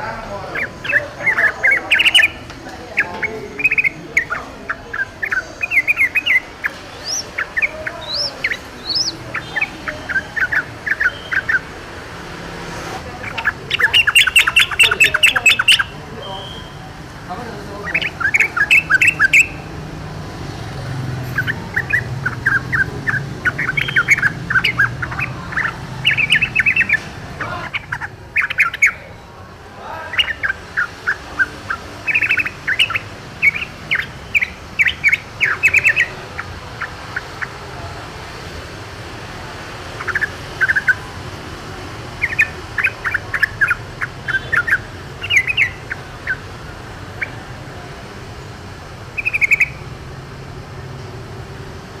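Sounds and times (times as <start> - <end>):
bird singing quick notes: 0.5 - 11.7, 13.2 - 16.9, 17.8 - 19.7, 21.2 - 29.0.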